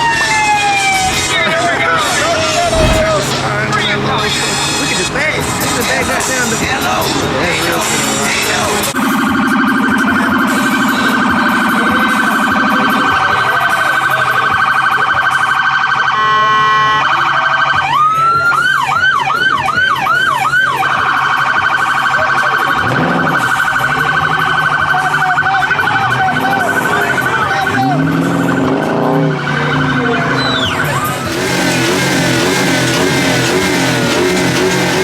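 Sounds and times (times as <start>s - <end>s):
police siren warble: 13.6s - 35.0s.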